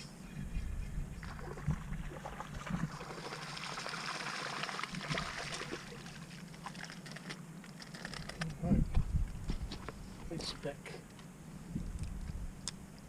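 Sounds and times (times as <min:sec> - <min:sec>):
water splashing and trickling: 0:01.2 - 0:07.4
small crackles: 0:06.0 - 0:08.6.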